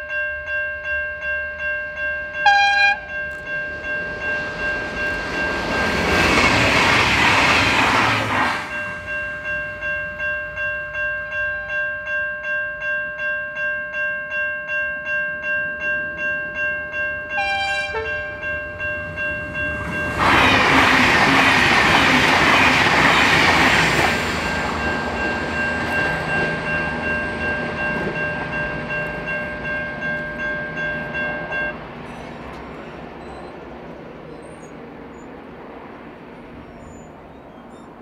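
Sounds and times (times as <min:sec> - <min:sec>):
steady high tone: 0:01.8 - 0:12.1
clickety-clack of train cars: 0:02.4 - 0:09.9, 0:17.4 - 0:35.3
rush of train wheels on rail: 0:03.3 - 0:09.6, 0:19.1 - 0:37.8.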